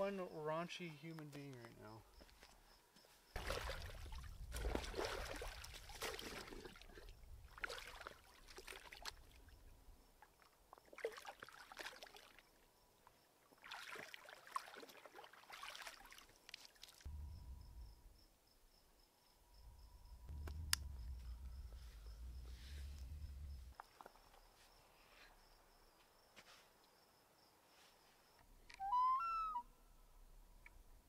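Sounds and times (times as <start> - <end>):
lake water splashing: 3.4 - 12.6, 13.5 - 17.0.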